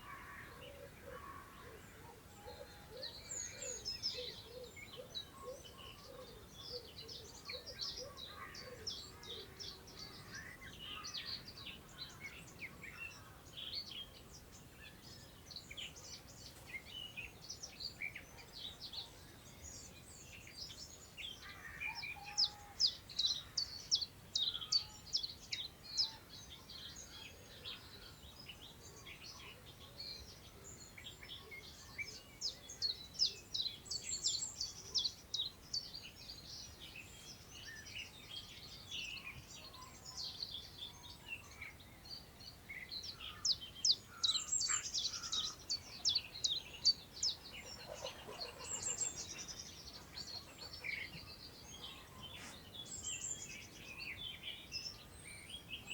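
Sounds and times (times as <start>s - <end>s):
songbirds chirping: 0.0s - 55.9s
wind through long grass: 48.6s - 55.9s.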